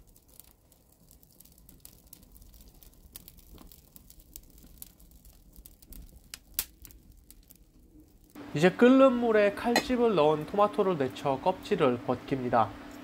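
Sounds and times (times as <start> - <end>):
fire pops and ticks: 0.0 - 8.4
wood fire crackling: 0.0 - 13.0.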